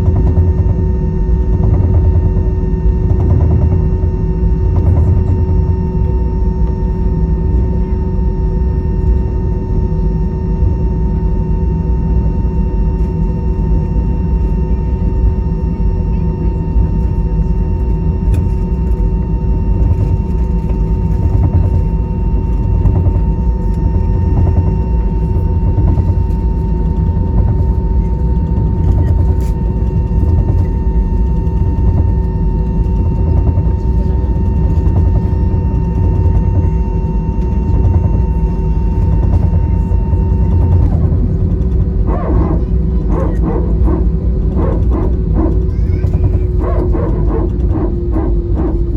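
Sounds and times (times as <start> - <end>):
jet engines in aircraft cabin: 0.0 - 48.9
steady whining tones: 0.0 - 48.9.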